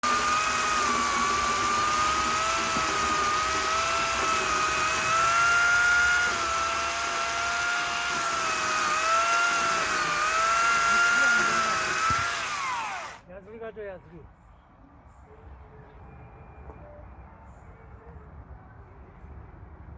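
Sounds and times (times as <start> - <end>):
power tool motor whining: 0.0 - 13.2.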